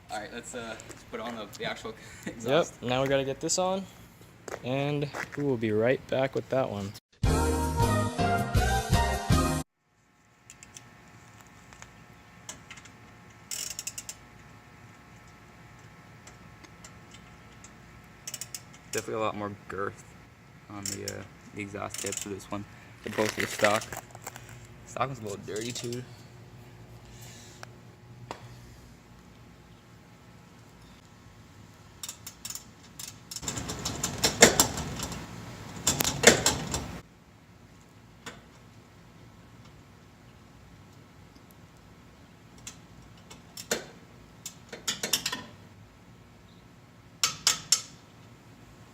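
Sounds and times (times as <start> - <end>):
ratchet wrench clicking: 13.5 - 14.2, 18.2 - 18.6.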